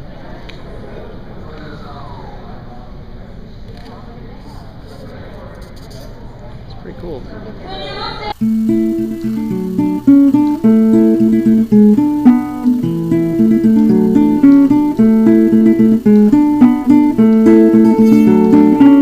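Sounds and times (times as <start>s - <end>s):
acoustic guitar picking: 8.4s - 19.0s.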